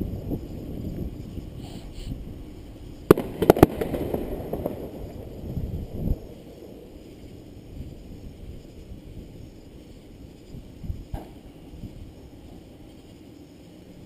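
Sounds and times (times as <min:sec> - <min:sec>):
fireworks crackling and rumbling: 0:00.0 - 0:14.0
fireworks bangs: 0:02.6 - 0:08.0.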